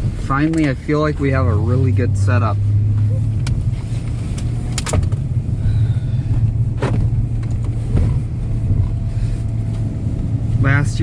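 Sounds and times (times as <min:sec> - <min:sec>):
engine and road drone inside truck: 0:00.0 - 0:11.0.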